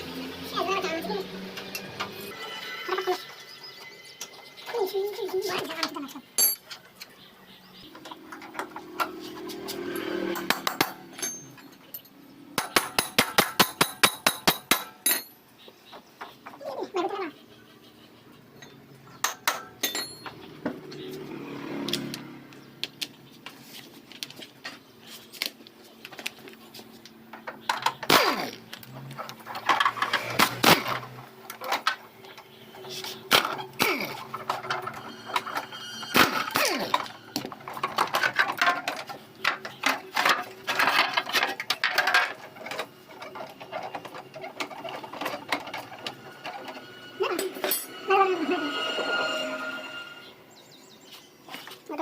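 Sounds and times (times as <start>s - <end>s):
metal tools clinking and clanking: 1.5s - 15.4s, 18.6s - 21.1s, 27.3s - 50.3s.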